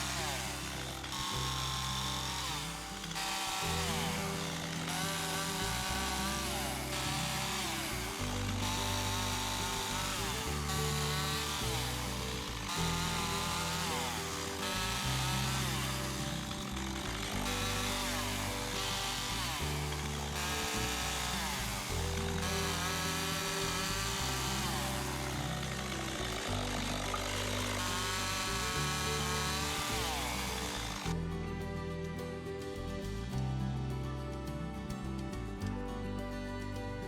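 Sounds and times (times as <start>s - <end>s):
chainsaw cutting logs: 0.0s - 34.4s
background music: 0.0s - 37.0s.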